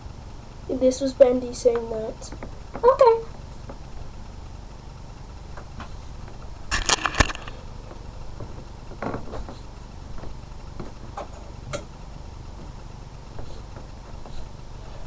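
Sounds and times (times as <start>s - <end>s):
small objects clicking and rustling: 6.7s - 7.6s.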